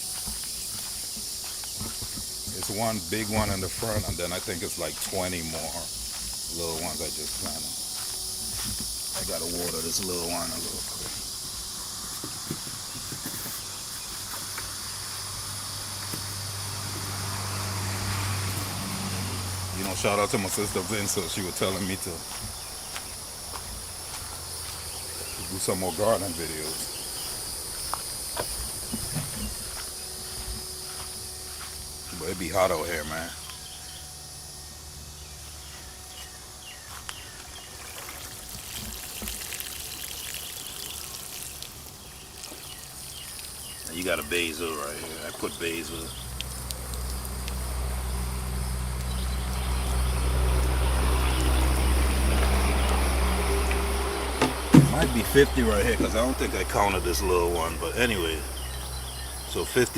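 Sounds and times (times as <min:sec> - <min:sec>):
insects chirring: 0:00.0 - 0:59.9
low hum: 0:26.3 - 0:37.6
water pouring onto soil: 0:37.8 - 0:47.8.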